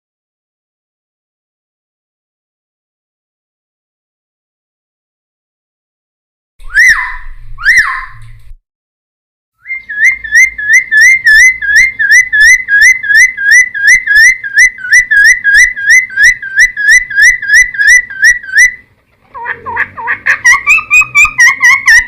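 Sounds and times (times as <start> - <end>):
bird singing whistled notes: 6.6 - 8.2, 9.6 - 18.8.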